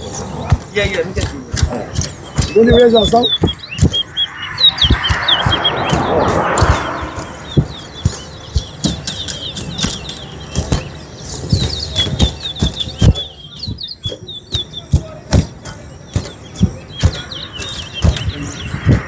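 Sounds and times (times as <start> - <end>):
finches chirping: 0.0 - 19.0
sharp knocks and flutters: 0.0 - 19.0.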